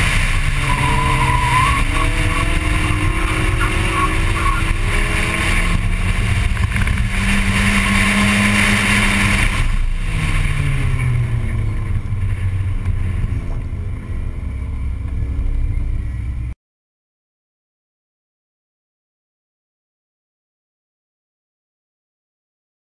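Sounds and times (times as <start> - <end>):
wind noise: 0.0 - 16.5
racing car engine: 0.0 - 16.6.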